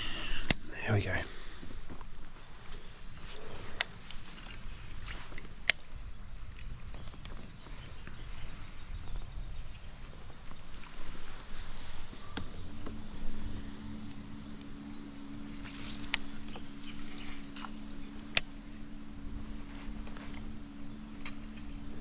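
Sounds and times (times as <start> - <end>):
electric motor humming: 8.0 - 22.0.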